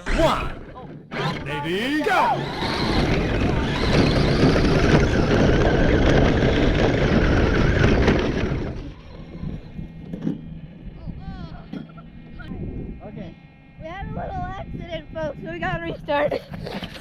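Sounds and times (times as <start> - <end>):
electric motor whine: 0.0 - 11.3
tyres on gravel: 1.4 - 8.9.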